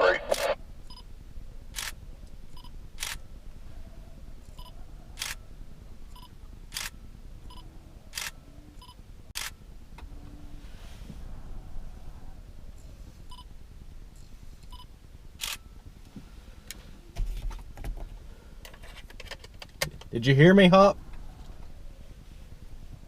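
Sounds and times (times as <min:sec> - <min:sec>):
low steady rumble: 0:00.0 - 0:23.0
sharp clicks: 0:03.0 - 0:03.2.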